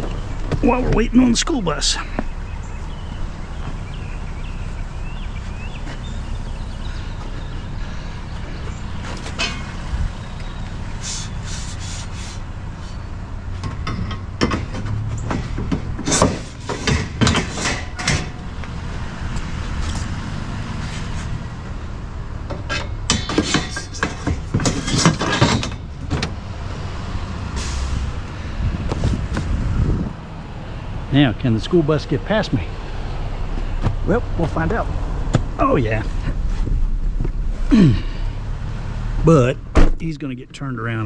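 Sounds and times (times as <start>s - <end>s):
vehicle engine idling: 0.0s - 25.1s, 25.7s - 41.0s
scrap knocking and clattering: 13.6s - 18.4s, 22.4s - 26.4s.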